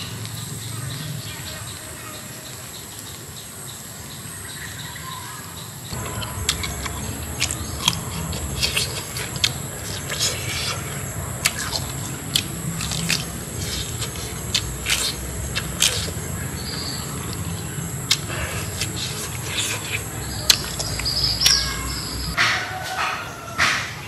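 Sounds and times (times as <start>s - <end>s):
close-miked chewing and biting: 5.9s - 22.4s.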